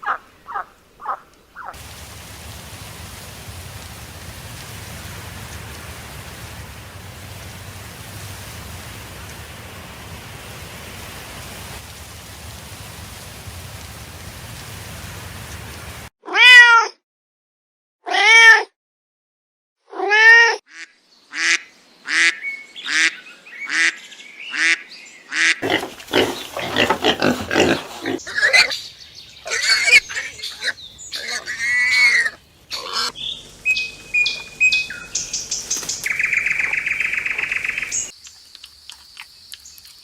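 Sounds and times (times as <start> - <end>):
steady rain-like hiss: 0.2 - 16.1, 25.0 - 40.0.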